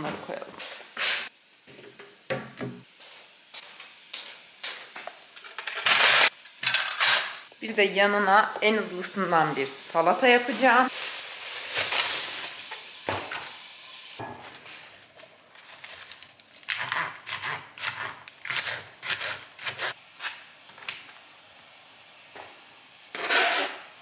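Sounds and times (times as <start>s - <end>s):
plastic bag rustling: 10.4s - 13.0s, 14.4s - 16.7s.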